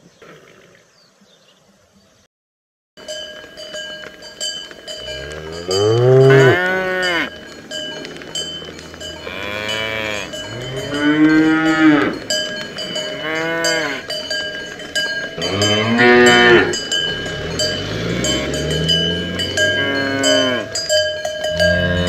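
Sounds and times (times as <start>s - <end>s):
cowbells clanking: 3.0s - 22.0s
young cattle mooing: 5.2s - 7.3s, 9.2s - 12.2s, 15.4s - 20.7s.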